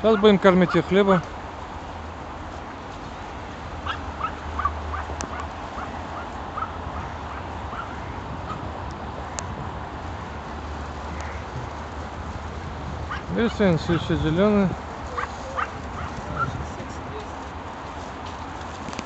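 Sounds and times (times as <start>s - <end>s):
ducks quacking: 0.0s - 1.3s, 3.8s - 8.7s, 10.9s - 12.1s, 13.0s - 16.6s.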